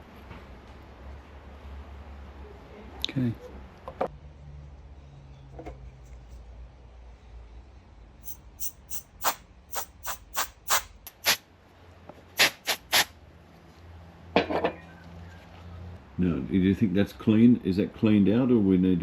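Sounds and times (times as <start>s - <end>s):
hand air blower puffing: 8.2s - 11.4s, 12.4s - 13.1s.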